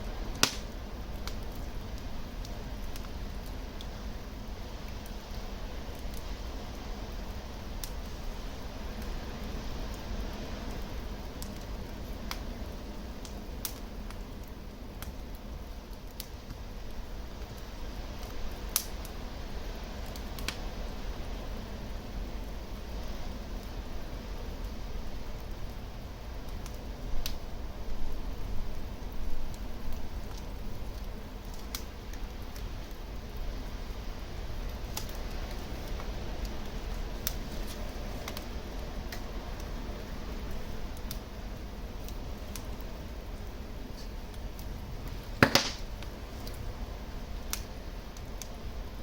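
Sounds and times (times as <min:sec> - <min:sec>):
sharp pops of fire: 0:00.0 - 0:04.0, 0:13.2 - 0:19.2, 0:20.0 - 0:20.8, 0:26.4 - 0:27.4, 0:29.2 - 0:33.0, 0:34.6 - 0:39.7, 0:42.0 - 0:46.7, 0:47.4 - 0:48.6
wood fire crackling: 0:00.0 - 0:49.0.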